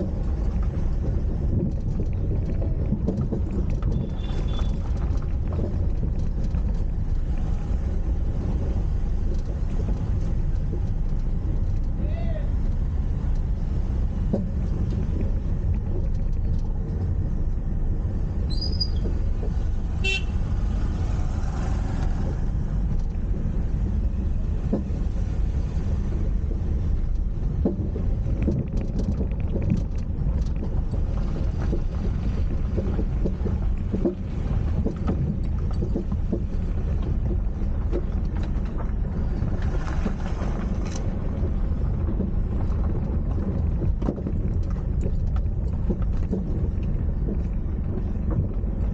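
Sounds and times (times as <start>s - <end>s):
car driving on road: 0.0s - 48.9s
vehicle horn toot: 20.0s - 20.4s.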